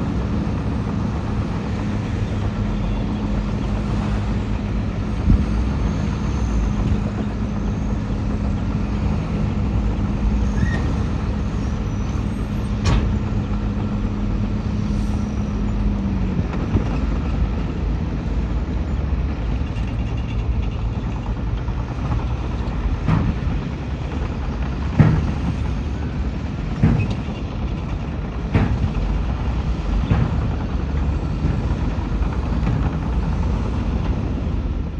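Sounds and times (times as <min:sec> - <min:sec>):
heavy diesel machinery running: 0:00.0 - 0:34.9.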